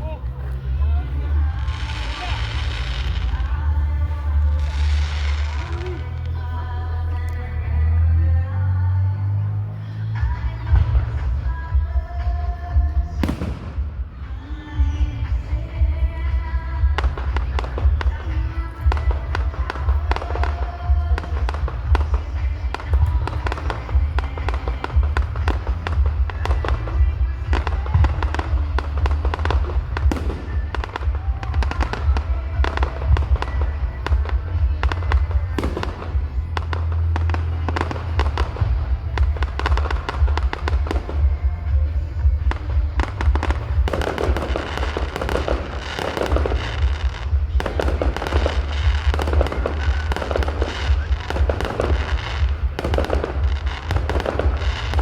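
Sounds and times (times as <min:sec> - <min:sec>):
fireworks bursting and crackling: 0:00.0 - 0:08.8, 0:09.5 - 0:55.0.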